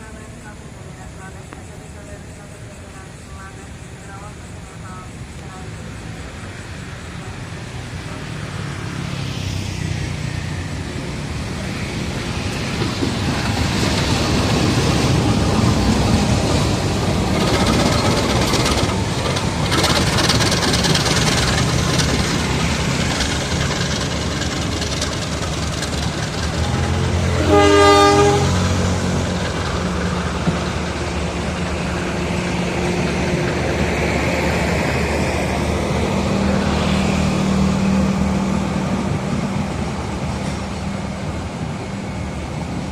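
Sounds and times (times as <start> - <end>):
train rumble and wheel clatter: 0.0 - 42.9
locomotive horn: 26.5 - 29.2.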